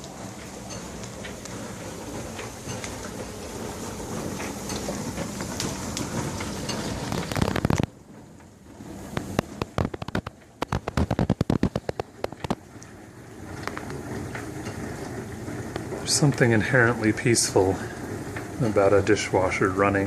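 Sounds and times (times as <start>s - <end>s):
dishwasher water spray rushing: 0.0s - 7.9s, 13.4s - 20.0s
sharp clicks and knocks: 9.1s - 12.6s.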